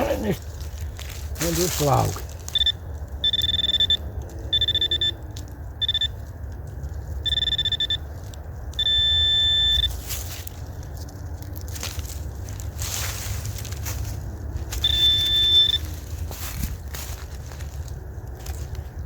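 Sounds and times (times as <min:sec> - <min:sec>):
metal detector probe tone: 0:02.5 - 0:05.2, 0:05.8 - 0:06.2, 0:07.2 - 0:08.1, 0:08.8 - 0:10.0, 0:14.8 - 0:15.9
low handling rumble: 0:09.9 - 0:19.0.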